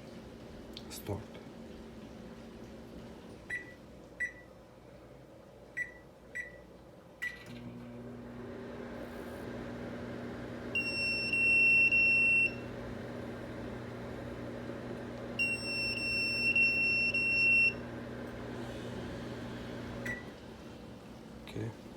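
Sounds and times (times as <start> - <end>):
microwave keypad beeps: 3.5 - 4.5, 5.8 - 6.6, 10.7 - 12.8, 15.4 - 17.9, 20.0 - 20.3
microwave oven humming: 7.2 - 21.7.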